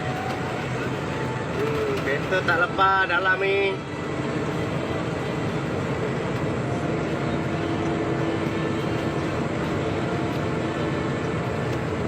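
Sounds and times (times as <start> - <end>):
constant hum: 0.0 - 12.0
vehicle engine drone: 0.0 - 12.0.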